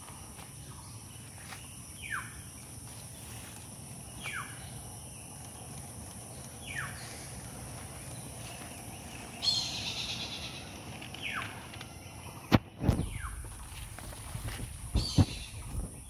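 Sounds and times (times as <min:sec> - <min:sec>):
high-pitched insect drone: 0:00.2 - 0:12.5.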